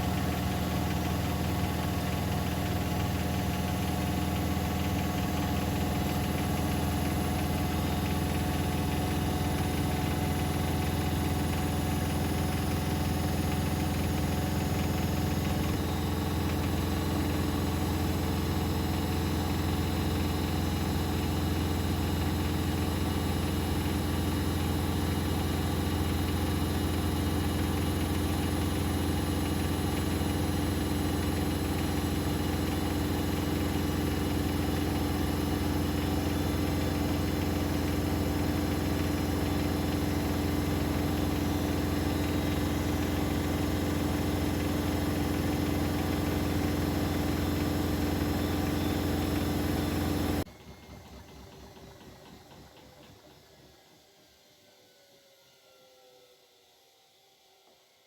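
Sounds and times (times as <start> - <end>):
washing machine spinning: 0.0 - 53.5.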